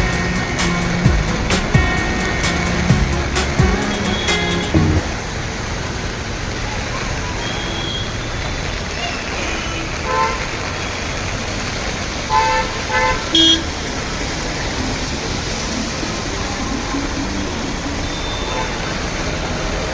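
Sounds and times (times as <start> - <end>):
rain hiss: 0.0 - 19.9
road traffic: 0.0 - 19.9
vehicle horns honking: 3.7 - 5.1, 9.3 - 10.6, 12.3 - 13.9, 18.1 - 19.1.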